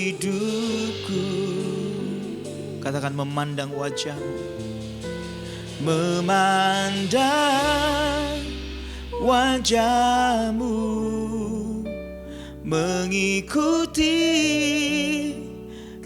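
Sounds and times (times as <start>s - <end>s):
person singing with vibrato: 0.0s - 12.0s, 12.6s - 15.8s
bass note: 0.0s - 14.8s
sustained keyboard chords: 0.0s - 16.0s.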